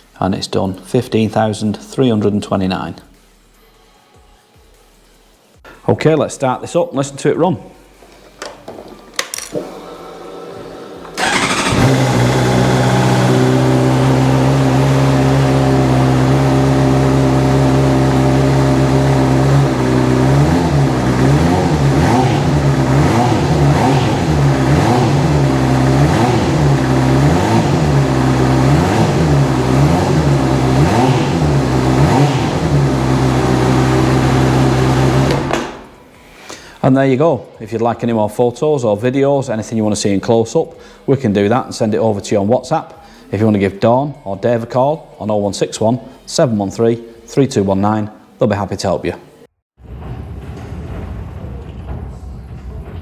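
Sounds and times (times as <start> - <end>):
motorcycle starter turning: 11.1 - 16.4, 17.4 - 36.0
motorcycle engine idling: 11.2 - 35.9.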